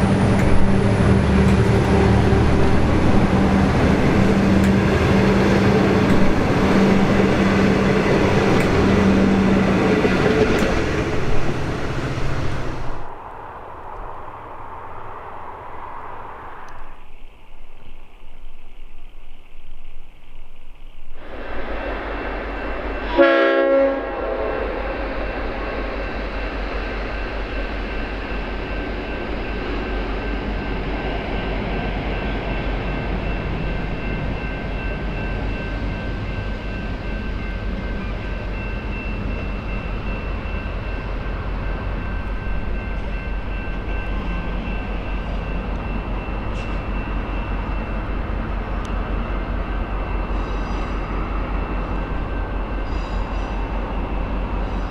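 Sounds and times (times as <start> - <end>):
diesel locomotive engine rumbling: 0.0 - 54.9
locomotive horn blast: 23.0 - 25.1.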